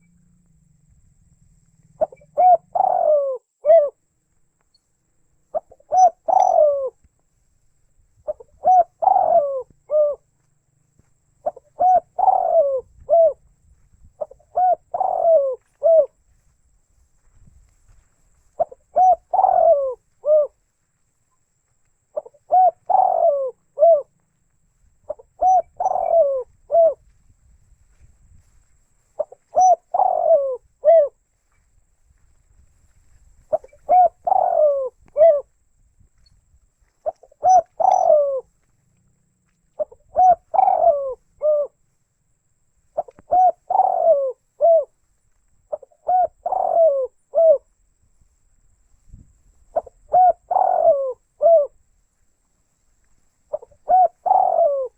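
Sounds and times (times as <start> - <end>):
dove cooing: 0.0 - 4.0, 5.4 - 7.0, 8.1 - 10.4, 11.0 - 16.5, 17.9 - 20.8, 22.1 - 24.2, 25.0 - 27.1, 28.4 - 31.7, 33.3 - 35.6, 36.9 - 38.6, 39.7 - 42.0, 42.9 - 45.0, 45.7 - 47.8, 49.7 - 51.8, 53.4 - 54.9.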